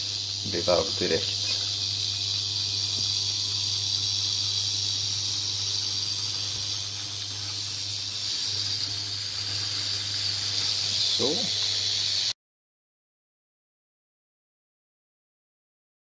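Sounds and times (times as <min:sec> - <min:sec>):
chicken sizzling in a pan: 0:00.0 - 0:12.4.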